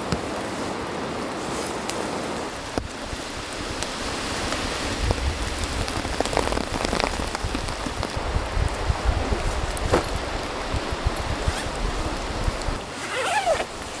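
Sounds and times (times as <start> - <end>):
steady rain falling: 0.0 - 13.1
sharp raindrops landing close: 2.6 - 9.0.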